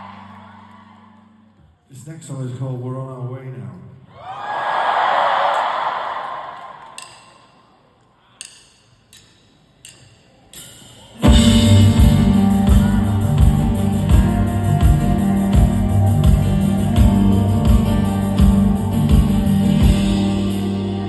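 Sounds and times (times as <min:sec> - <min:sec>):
crowd cheering: 0:00.0 - 0:01.4, 0:04.1 - 0:07.2
kick drum beat: 0:11.2 - 0:20.4
live rock band playing: 0:11.2 - 0:21.0.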